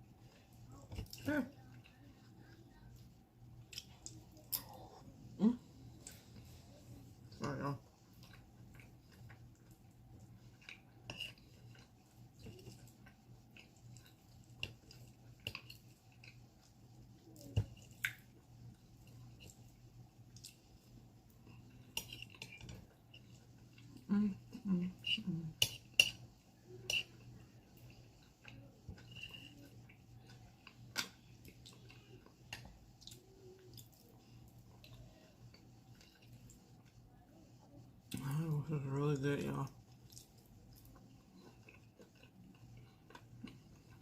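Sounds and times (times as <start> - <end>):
faint low hum: 0.0 - 44.0
wet chewing sounds: 0.3 - 5.1, 5.8 - 24.1, 25.7 - 37.1, 39.7 - 44.0
wet chewing: 8.0 - 18.4, 39.8 - 44.0.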